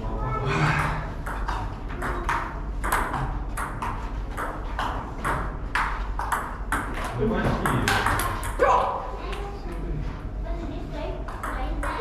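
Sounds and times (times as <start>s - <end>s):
table tennis ball hitting bats and table: 0.8s - 9.5s, 11.3s - 12.0s.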